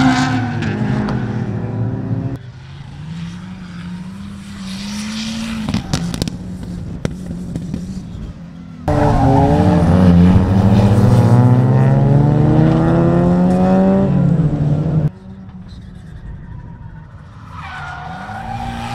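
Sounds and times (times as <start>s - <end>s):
car passing: 8.8s - 15.1s
car engine accelerating hard: 8.9s - 15.1s.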